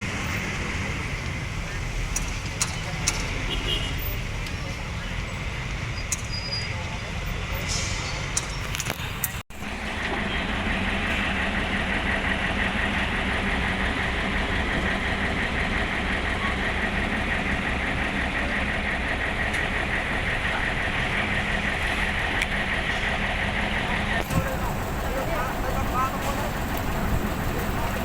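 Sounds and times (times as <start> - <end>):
excavator diesel engine running: 6.9 - 28.0.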